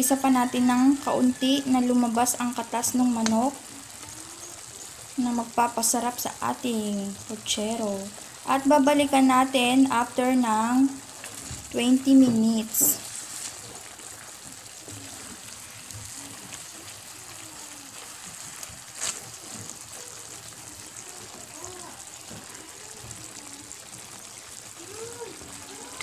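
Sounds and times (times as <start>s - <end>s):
chicken sizzling in a pan: 0.0s - 26.0s
wooden spatula stirring: 11.2s - 20.6s.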